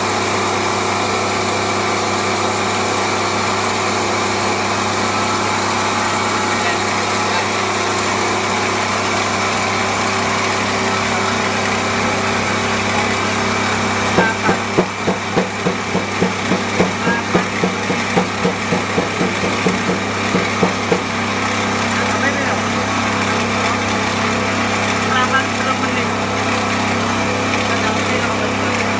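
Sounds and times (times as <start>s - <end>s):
coffee mill humming: 0.0s - 28.9s
pulsing knock: 14.2s - 21.1s.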